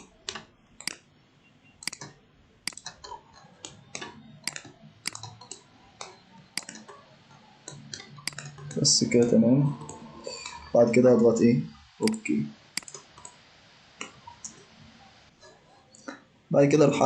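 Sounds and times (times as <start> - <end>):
computer mouse clicking: 0.0 - 1.0, 1.8 - 10.7, 12.0 - 13.4, 14.0 - 14.7.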